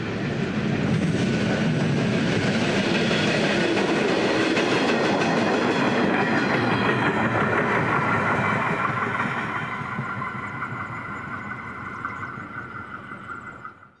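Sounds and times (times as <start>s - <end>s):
train rumble and wheel noise: 0.0s - 14.0s
high ringing tone: 9.2s - 14.0s.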